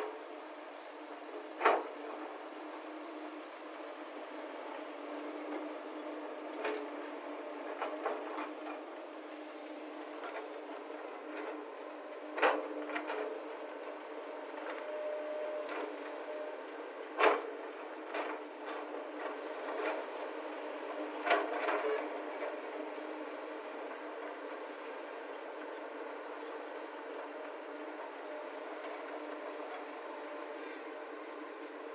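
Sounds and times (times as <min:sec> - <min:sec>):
excavator diesel engines running: 0:00.0 - 0:31.9.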